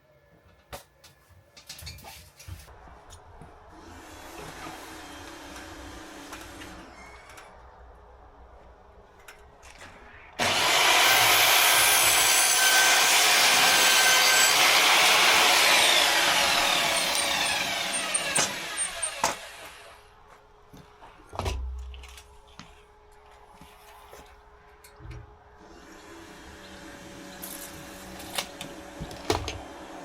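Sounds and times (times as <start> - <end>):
power saw cutting wood: 3.8 - 7.0, 10.4 - 20.0.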